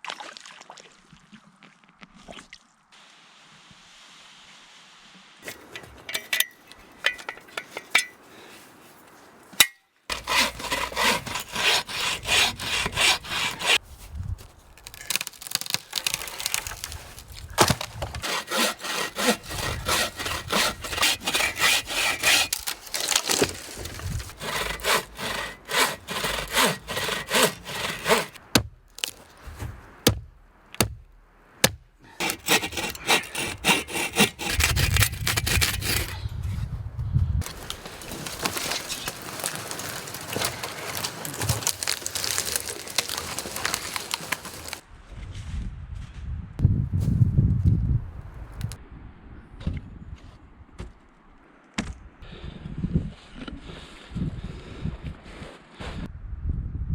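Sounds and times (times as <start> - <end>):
hand saw cutting wood: 5.4 - 6.4, 10.1 - 13.8, 17.6 - 29.2, 31.6 - 36.2, 37.4 - 44.8.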